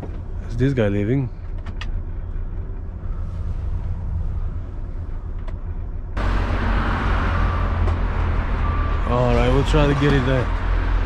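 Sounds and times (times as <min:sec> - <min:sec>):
diesel engine running: 0:00.0 - 0:11.0
steady rushing noise: 0:02.8 - 0:06.6.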